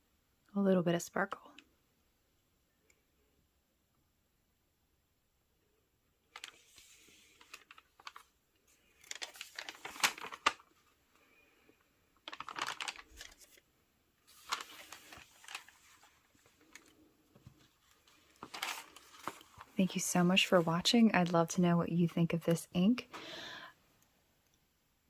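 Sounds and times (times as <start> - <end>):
paper crinkling and rustling: 6.3 - 11.0, 12.2 - 13.6, 14.2 - 21.0.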